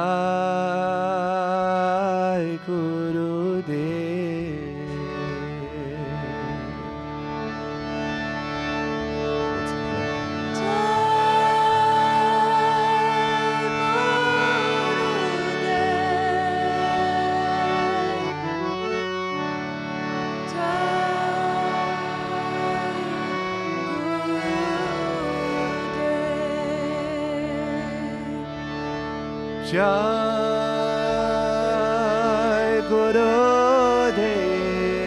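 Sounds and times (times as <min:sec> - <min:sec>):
sustained instrumental drone: 0:02.4 - 0:35.0
voices chanting: 0:10.6 - 0:18.3, 0:20.5 - 0:26.3.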